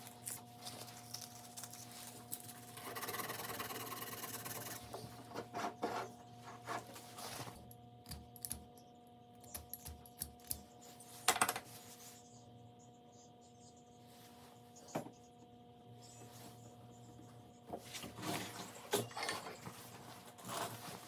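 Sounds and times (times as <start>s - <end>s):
steady low hum: 0.0s - 21.0s
objects clattering: 17.8s - 21.0s.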